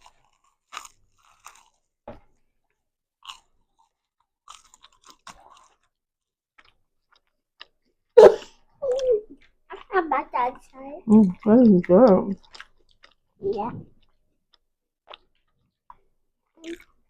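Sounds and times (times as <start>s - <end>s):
chewing crunchy biscuit: 0.0s - 17.0s.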